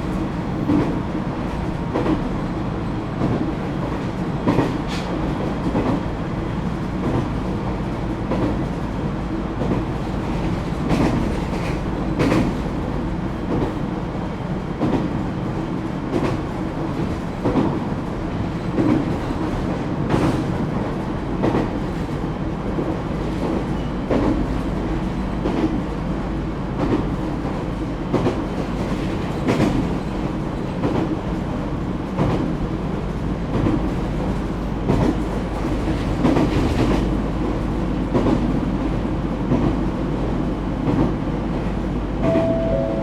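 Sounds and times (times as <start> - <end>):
train interior rumble: 0.0 - 43.0
short steady tone: 42.2 - 43.0.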